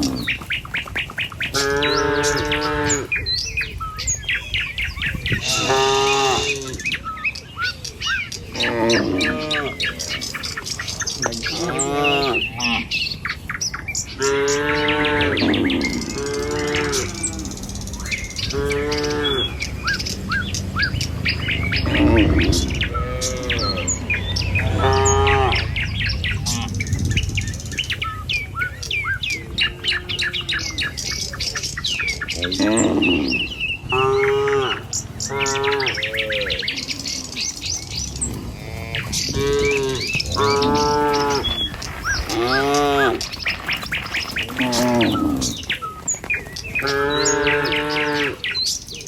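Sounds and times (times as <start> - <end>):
birds chirping: 0.0 - 49.0
cattle mooing: 1.5 - 3.2, 5.4 - 6.9, 8.6 - 9.9, 11.3 - 12.9, 14.2 - 17.6, 18.5 - 19.6, 21.8 - 25.8, 26.4 - 26.9, 32.4 - 36.6, 38.3 - 41.7, 42.3 - 43.3, 44.4 - 45.7, 46.8 - 48.4.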